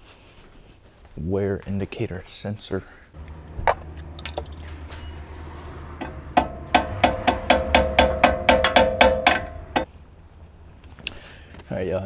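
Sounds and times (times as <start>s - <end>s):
hammer striking metal: 3.2s - 9.9s.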